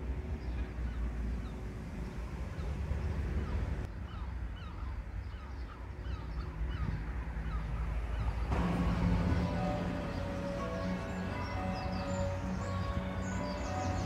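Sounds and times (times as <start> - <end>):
music: 8.7 - 14.0.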